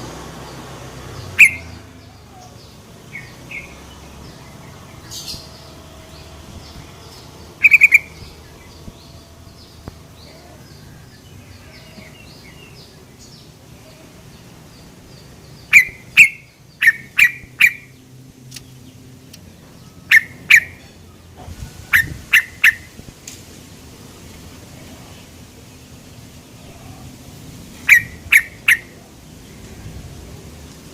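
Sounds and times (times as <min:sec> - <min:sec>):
bird sharp call notes: 0:01.4 - 0:01.8, 0:07.6 - 0:08.2, 0:27.8 - 0:29.0
faint repeated chirping: 0:01.4 - 0:01.8.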